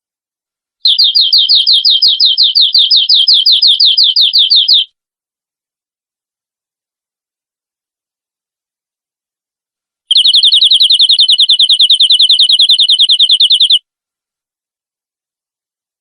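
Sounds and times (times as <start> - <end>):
canary trilling: 0.8 - 4.9, 10.1 - 13.8.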